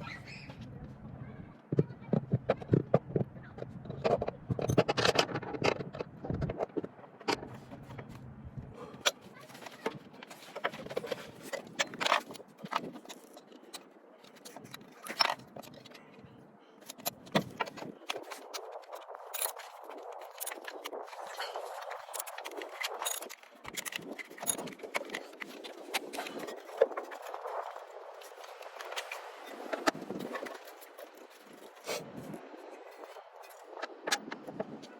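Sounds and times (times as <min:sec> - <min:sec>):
metallic clinks and scrapes: 0:16.8 - 0:27.8.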